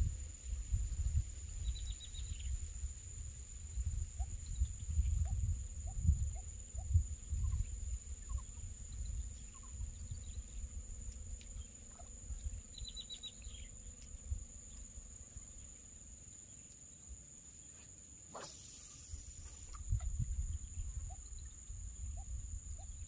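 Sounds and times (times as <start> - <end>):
insects droning: 0.0 - 23.0
bird chirping: 11.5 - 14.9
noisy rustle: 17.7 - 21.9.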